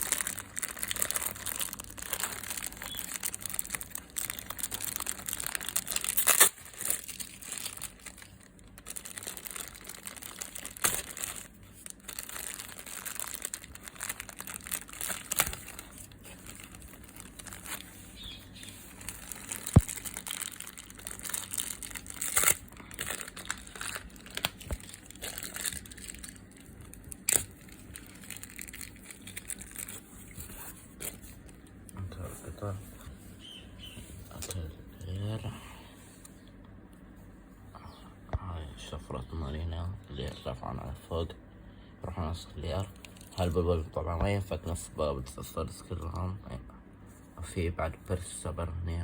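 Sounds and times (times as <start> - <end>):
plastic packaging crinkling: 0.0 - 32.8, 42.6 - 43.7.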